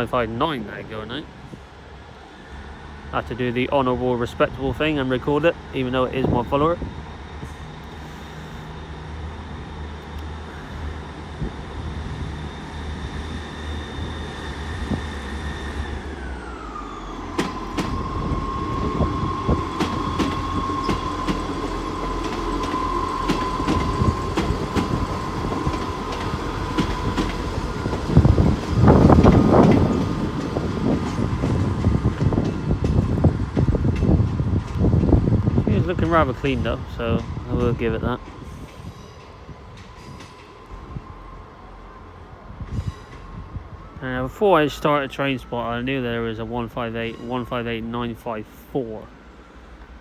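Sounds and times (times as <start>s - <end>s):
train engine whine: 0.0s - 50.0s
wheels clicking over rail joints: 15.9s - 40.6s.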